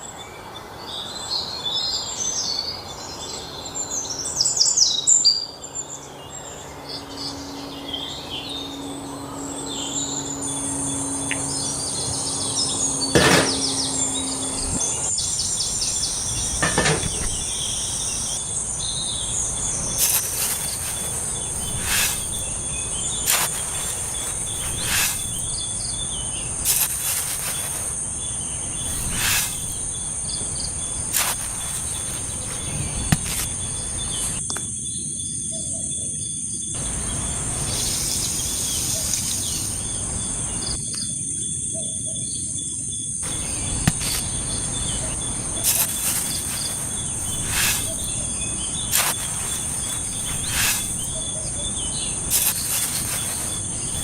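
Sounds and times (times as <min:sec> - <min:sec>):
high-pitched insect buzzing drone: 0:05.8 - 0:34.4, 0:36.8 - 0:40.8, 0:43.2 - 0:54.0
low background rumble: 0:06.3 - 0:34.4
short insect chirps: 0:06.5 - 0:34.4, 0:36.8 - 0:40.8, 0:43.2 - 0:54.0.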